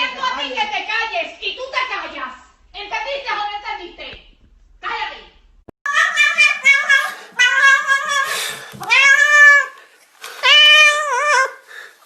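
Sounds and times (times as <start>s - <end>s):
cat meowing loudly: 5.9s - 9.8s, 10.4s - 11.6s.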